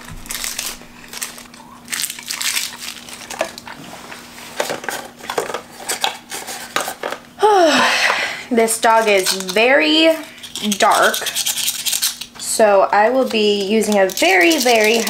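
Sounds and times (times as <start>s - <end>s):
crunchy chewing: 0.0s - 3.8s.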